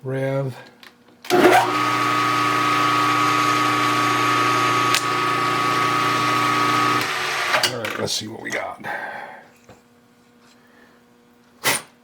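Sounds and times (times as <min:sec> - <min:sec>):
milling machine humming and whining: 0:01.3 - 0:07.6.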